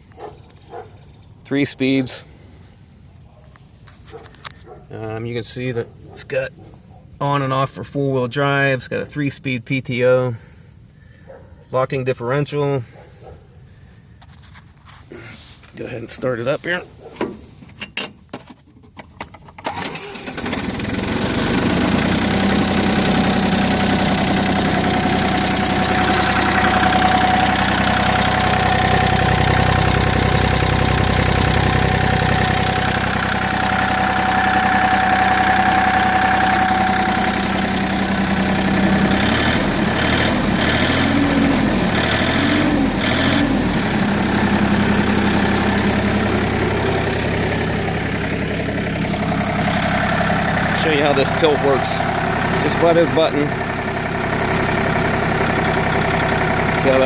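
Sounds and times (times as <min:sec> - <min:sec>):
diesel tractor engine starting and running: 0:14.2 - 0:57.0.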